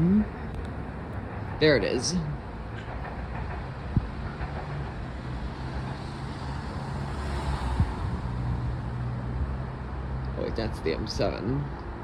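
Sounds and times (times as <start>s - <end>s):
electric train approaching: 0.0s - 12.0s.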